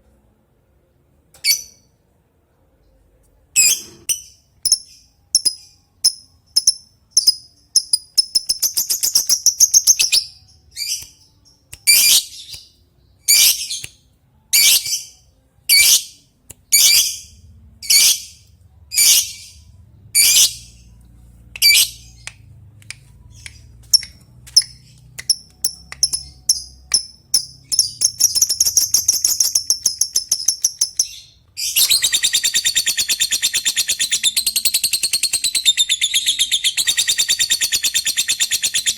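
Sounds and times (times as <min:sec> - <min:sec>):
bird chirping and chattering: 0:03.6 - 0:11.0, 0:23.3 - 0:38.9.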